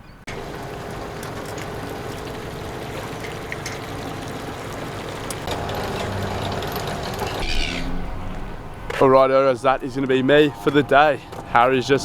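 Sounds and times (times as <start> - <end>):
low even hum: 0.3 - 8.9
water rushing and trickling: 0.3 - 8.9.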